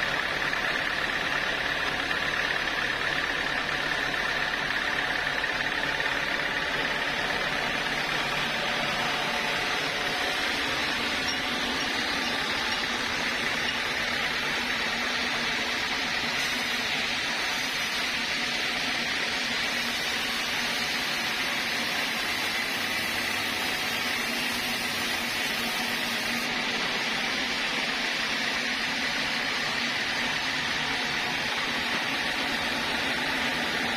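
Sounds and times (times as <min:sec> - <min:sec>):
saw machinery whirring: 0:00.0 - 0:33.9.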